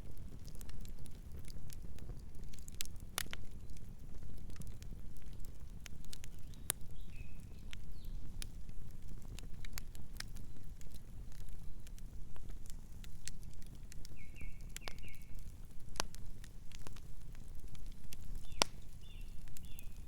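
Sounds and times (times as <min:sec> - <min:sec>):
campfire crackling and popping: 0:00.0 - 0:20.0
low fire rumble: 0:00.0 - 0:20.0
faint bird chirp: 0:06.4 - 0:08.3, 0:14.1 - 0:15.4, 0:18.4 - 0:20.0.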